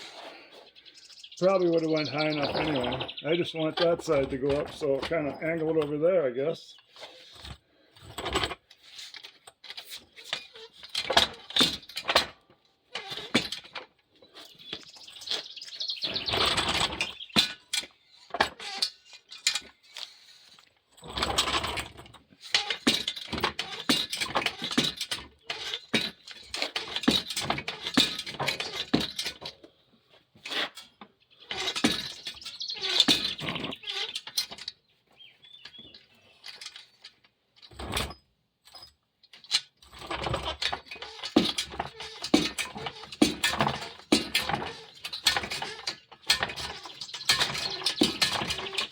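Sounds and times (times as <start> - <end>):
car jack clicking and rattling: 7.4 - 14.0, 21.0 - 29.6, 30.5 - 34.8, 36.4 - 48.9.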